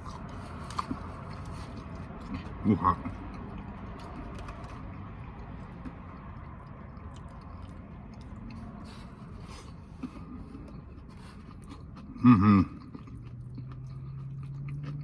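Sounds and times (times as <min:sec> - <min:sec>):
low steady hum: 0:00.0 - 0:15.0
person chewing: 0:00.0 - 0:15.0.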